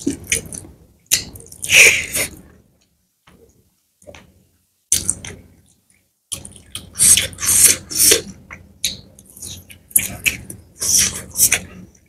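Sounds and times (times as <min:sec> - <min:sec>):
wet chewing and lip smacking: 0:00.0 - 0:01.7, 0:04.9 - 0:11.7.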